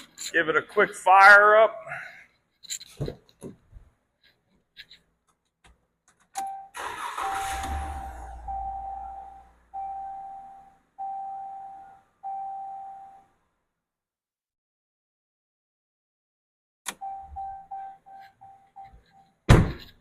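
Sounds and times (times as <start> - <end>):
engine cranking and starting: 6.7 - 8.7
warning chime dinging: 7.2 - 13.2.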